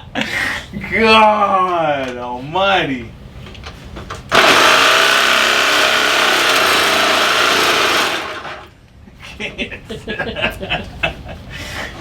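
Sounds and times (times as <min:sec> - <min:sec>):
power tool cutting steel: 0:04.3 - 0:08.7.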